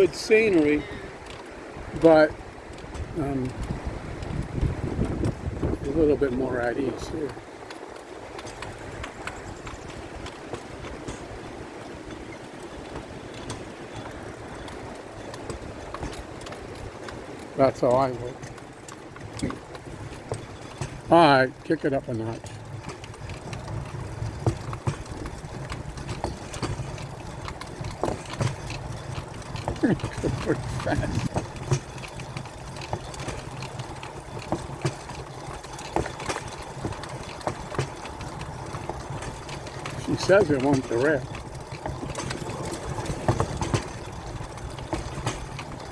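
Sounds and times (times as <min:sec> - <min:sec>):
sharp clicks and ticks: 0:00.0 - 0:45.9
wheels rumbling on rails: 0:00.0 - 0:45.9.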